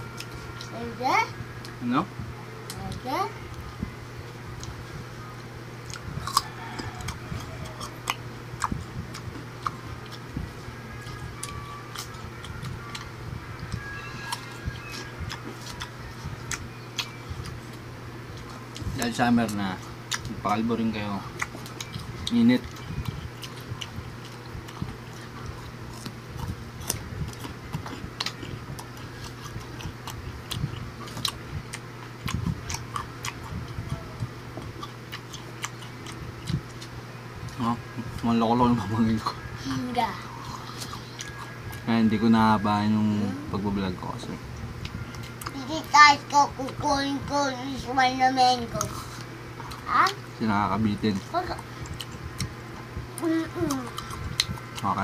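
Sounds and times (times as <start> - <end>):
low hum: 0.0 - 55.0
crunchy chewing: 4.5 - 39.6, 40.2 - 42.5, 50.9 - 55.0.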